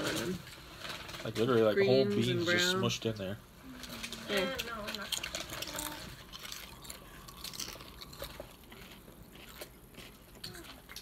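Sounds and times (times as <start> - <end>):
chewing crunchy crisps: 3.8 - 11.0.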